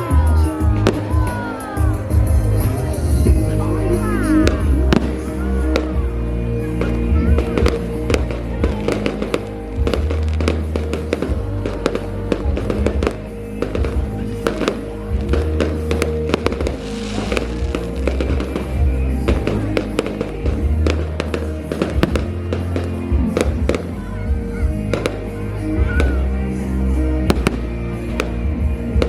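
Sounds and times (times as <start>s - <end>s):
fireworks bangs and crackles: 0.0s - 29.0s
loud music with heavy bass: 0.0s - 29.0s
hissing crackle: 16.4s - 19.9s.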